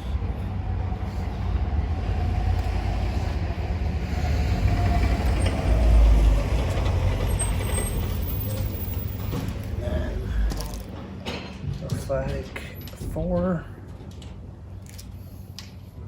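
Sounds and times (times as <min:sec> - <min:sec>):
vehicle passing with low rumble: 0:00.0 - 0:11.8.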